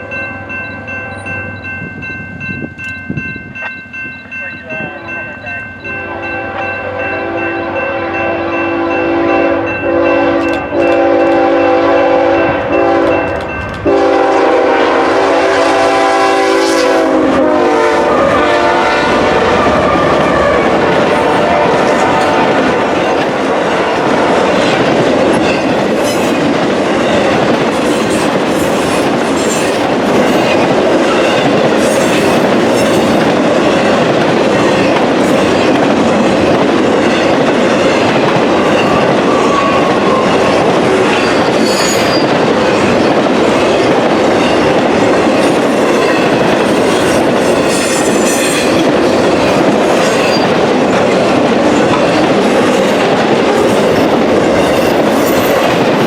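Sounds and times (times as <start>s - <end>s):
train wheels clacking: 8.2s - 56.0s
wheel squeals: 41.2s - 42.4s.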